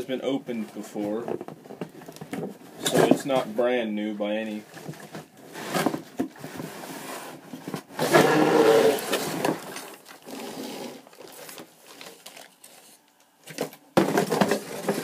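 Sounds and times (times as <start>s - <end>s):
newspaper rustling and crinkling: 11.1s - 15.0s.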